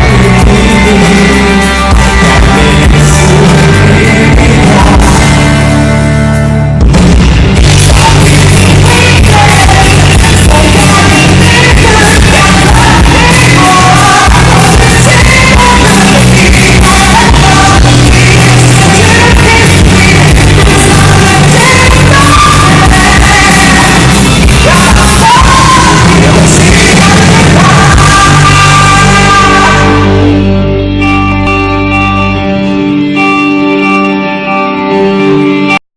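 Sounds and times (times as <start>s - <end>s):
live rock band playing: 0.0s - 35.8s
singer shouting and yelling: 7.7s - 30.7s.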